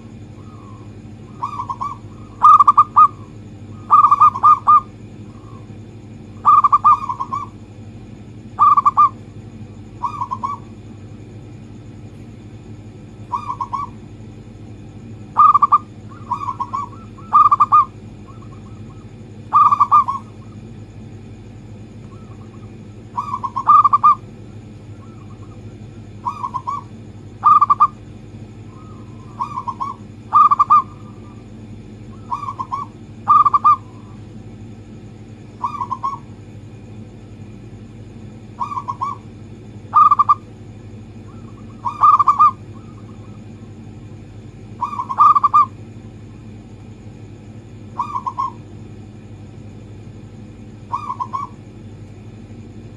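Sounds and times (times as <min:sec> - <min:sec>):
dove cooing: 0:00.0 - 0:07.6, 0:08.6 - 0:10.8, 0:13.2 - 0:14.1, 0:15.3 - 0:20.9, 0:22.0 - 0:28.0, 0:28.6 - 0:34.2, 0:35.5 - 0:36.3, 0:38.5 - 0:40.5, 0:41.1 - 0:43.6, 0:44.6 - 0:45.8, 0:47.9 - 0:48.8, 0:50.8 - 0:51.7
faint steady hum: 0:00.0 - 0:52.9.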